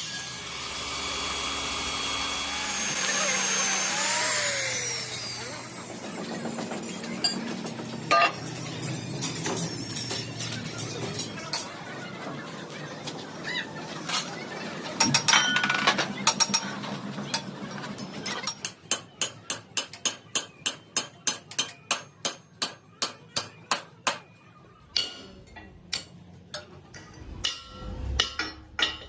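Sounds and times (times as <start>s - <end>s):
hammer striking metal: 25.0s - 29.0s.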